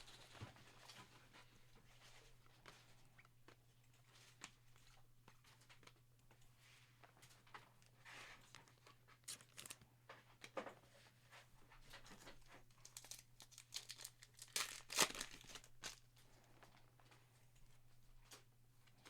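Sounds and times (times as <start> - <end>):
card packaging crinkling: 9.3 - 9.8, 12.8 - 16.0.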